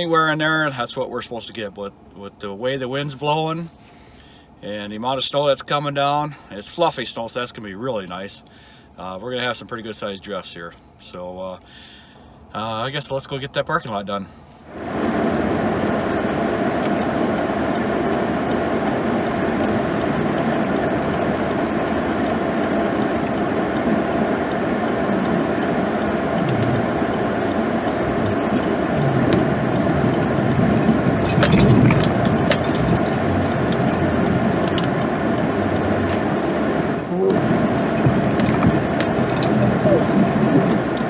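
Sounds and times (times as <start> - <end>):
truck engine and road noise: 14.4 - 41.0
sharp clicks: 31.3 - 35.1.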